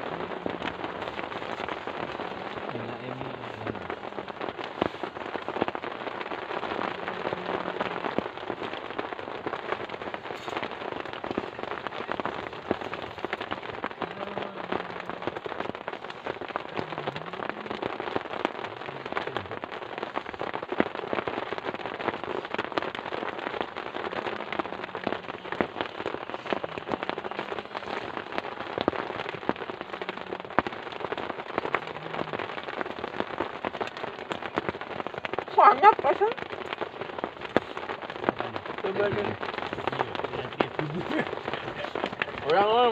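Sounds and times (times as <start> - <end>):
heavy rain: 0.0 - 42.9
raindrops ticking on a surface: 0.0 - 42.9.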